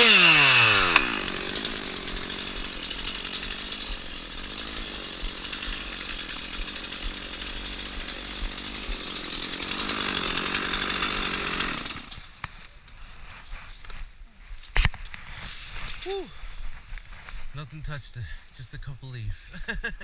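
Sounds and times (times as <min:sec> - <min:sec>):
chainsaw idling: 0:00.0 - 0:12.4.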